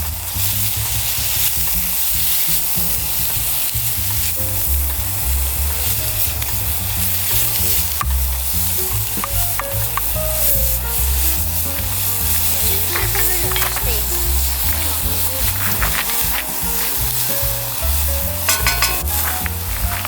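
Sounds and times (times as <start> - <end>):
background music with bass: 0.0 - 20.0
food sizzling in a pan: 0.0 - 20.0.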